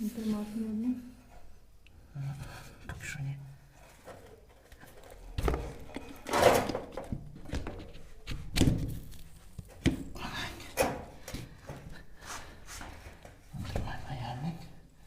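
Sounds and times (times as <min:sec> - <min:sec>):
plastic pipes scraping: 0:03.8 - 0:08.5.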